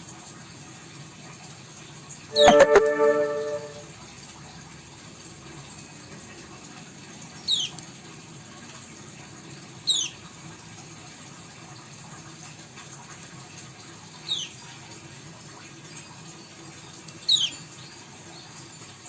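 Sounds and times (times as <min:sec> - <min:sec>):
cage bird chirping: 0:07.5 - 0:07.8, 0:09.9 - 0:10.1, 0:17.3 - 0:17.6.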